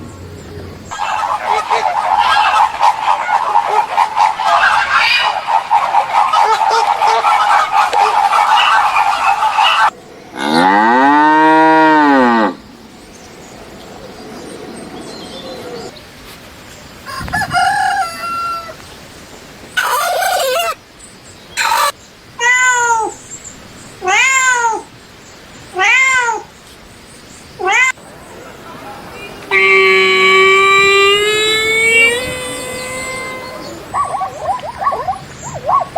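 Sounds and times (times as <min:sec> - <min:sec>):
chirping: 0:00.0 - 0:09.9, 0:19.8 - 0:20.8, 0:21.6 - 0:22.0, 0:29.5 - 0:35.9
cat meowing: 0:21.6 - 0:23.2, 0:24.0 - 0:24.9, 0:25.8 - 0:26.5, 0:27.6 - 0:28.0
long low animal call: 0:21.6 - 0:23.2, 0:29.5 - 0:35.9.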